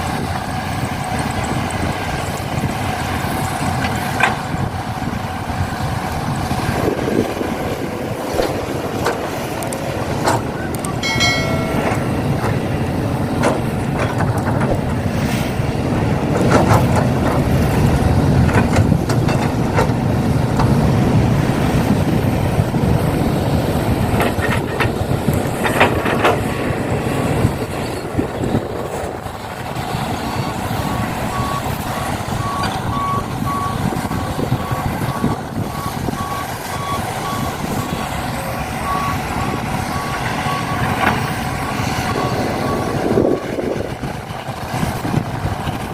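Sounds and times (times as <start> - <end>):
truck engine clattering: 0.0 - 45.9
reversing alarm beeping: 10.6 - 12.4, 30.3 - 43.6.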